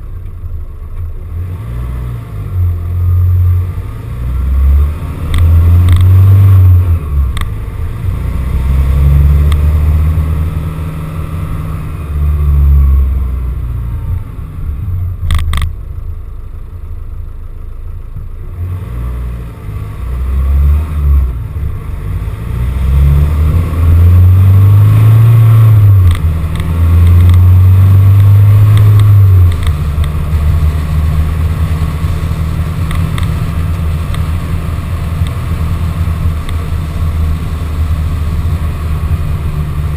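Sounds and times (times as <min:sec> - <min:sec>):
van engine revving: 0:00.0 - 0:39.9.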